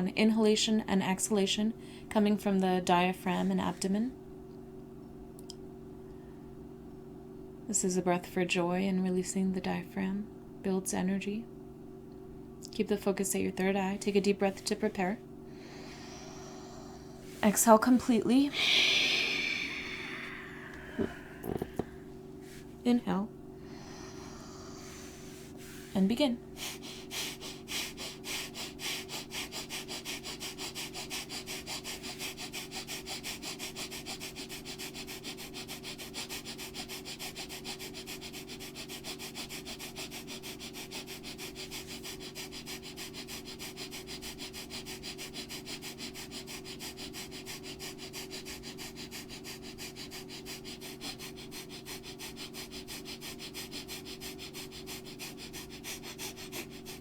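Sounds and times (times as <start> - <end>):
rapid forceful breathing: 15.5 - 22.8, 23.6 - 57.0.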